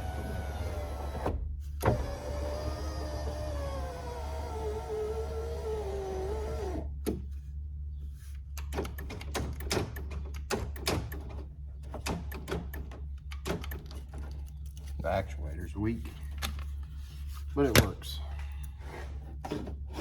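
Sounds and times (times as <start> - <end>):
power window motor whirring: 0.0 - 7.2
clicks and clunks inside door: 6.8 - 7.3, 8.4 - 14.9.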